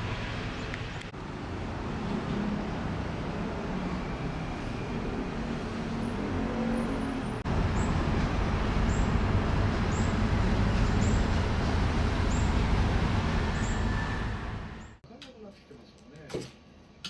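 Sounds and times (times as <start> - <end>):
vehicle road noise rumble: 0.0 - 15.0.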